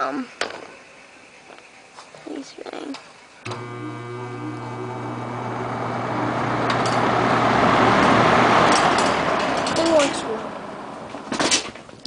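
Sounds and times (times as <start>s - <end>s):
fan motor hum: 3.4s - 12.0s.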